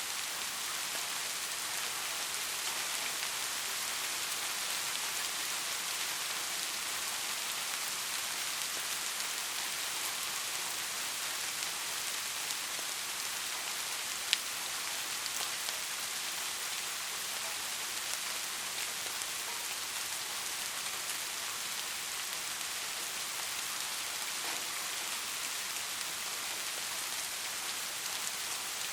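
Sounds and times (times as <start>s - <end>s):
steady rain: 0.0s - 28.9s.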